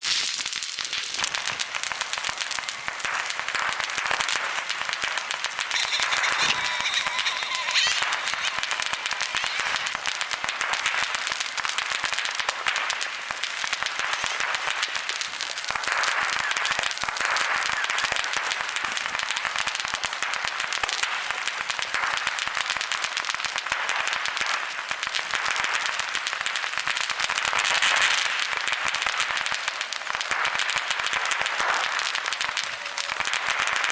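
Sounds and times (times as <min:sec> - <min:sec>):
fireworks crackling and popping: 0:00.0 - 0:33.9
firework whistle: 0:01.2 - 0:20.0, 0:30.4 - 0:33.9.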